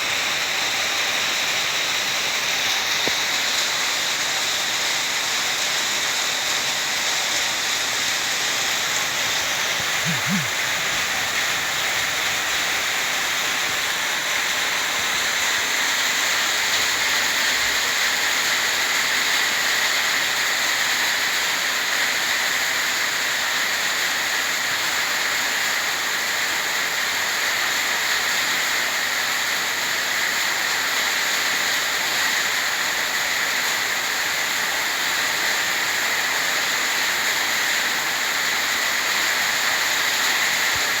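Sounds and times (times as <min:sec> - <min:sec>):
heavy rain pouring: 0:00.0 - 0:20.4.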